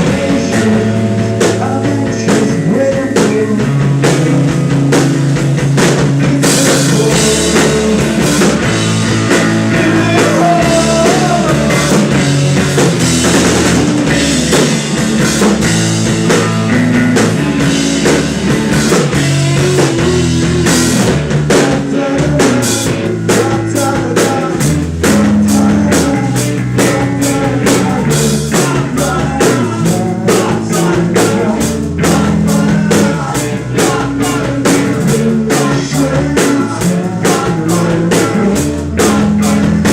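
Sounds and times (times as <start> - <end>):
person singing: 0.0 - 4.9, 6.2 - 12.5, 18.9 - 39.9
bass guitar: 0.0 - 39.9
drum kit: 0.0 - 39.9
electric guitar: 0.0 - 39.9.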